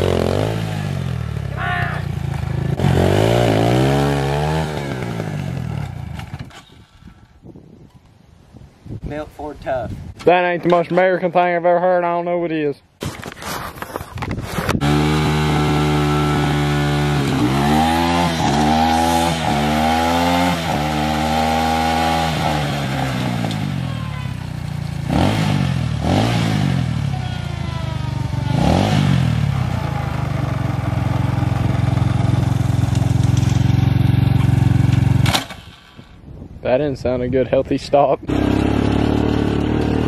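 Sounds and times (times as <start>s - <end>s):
dirt bike engine revving: 0.0s - 6.5s, 14.8s - 36.0s, 38.2s - 40.0s.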